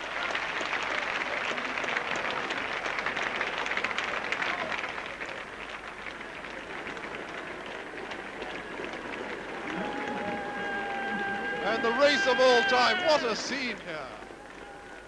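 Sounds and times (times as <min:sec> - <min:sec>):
crowd applauding and cheering: 0:00.0 - 0:15.0.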